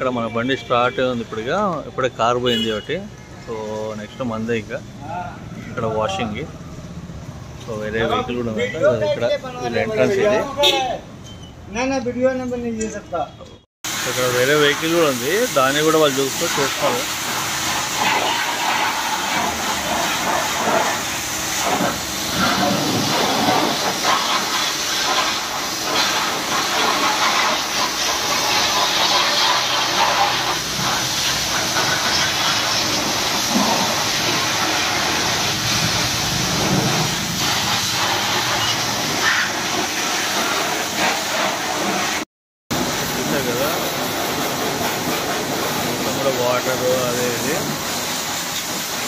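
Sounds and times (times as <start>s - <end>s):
pressure washer spraying water: 13.9s - 49.0s.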